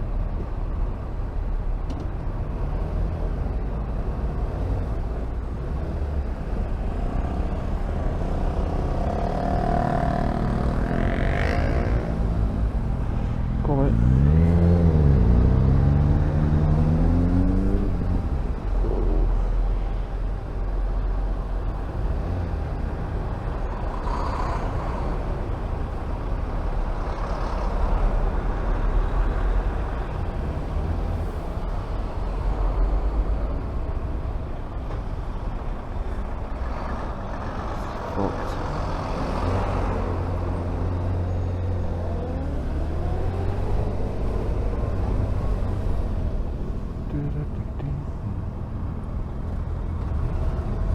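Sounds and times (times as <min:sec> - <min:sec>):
road traffic noise: 0:00.0 - 0:50.9
motorcycle engine revving: 0:08.2 - 0:12.8, 0:13.7 - 0:19.3, 0:38.2 - 0:48.5.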